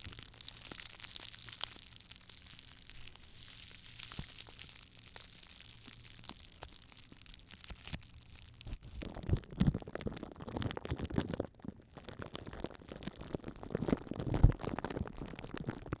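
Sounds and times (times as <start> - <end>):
crackling and crunching: 0.0 - 16.0.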